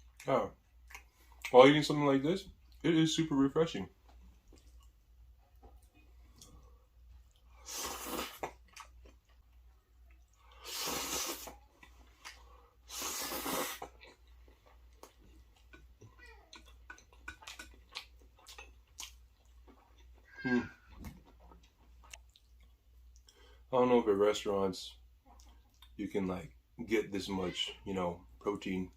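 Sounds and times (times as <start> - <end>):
wet chewing: 0.0 - 1.6, 4.0 - 23.5, 25.2 - 26.0.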